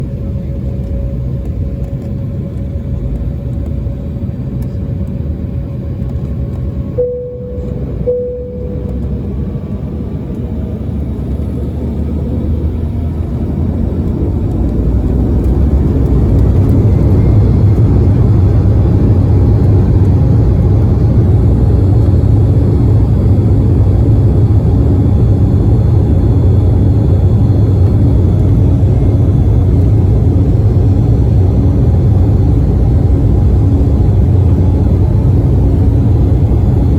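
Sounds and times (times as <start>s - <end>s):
short tones: 7.0s - 9.5s.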